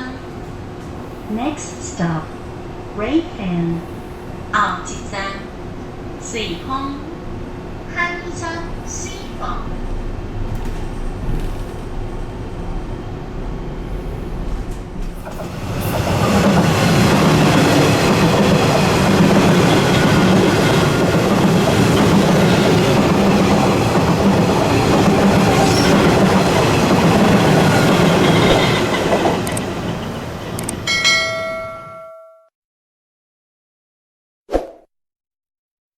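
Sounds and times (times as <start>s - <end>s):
train wheels clattering over rails: 14.4s - 30.7s.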